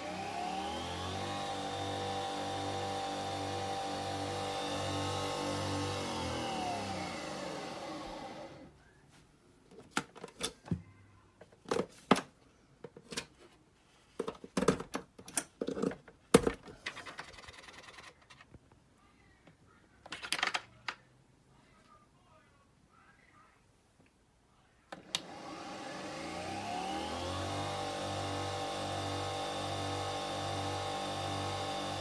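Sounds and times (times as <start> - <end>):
coffee machine motor running: 0.0 - 8.6, 25.2 - 32.0.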